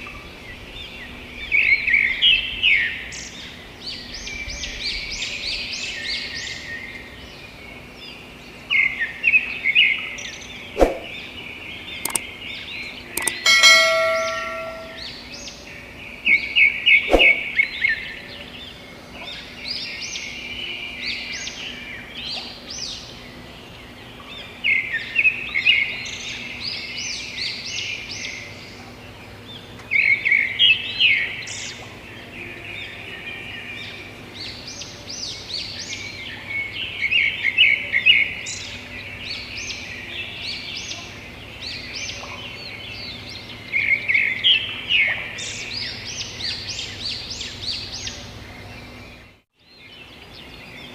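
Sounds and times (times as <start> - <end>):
songbird chattering: 12.0 - 12.3, 13.2 - 15.0
sharp click: 13.2 - 15.0.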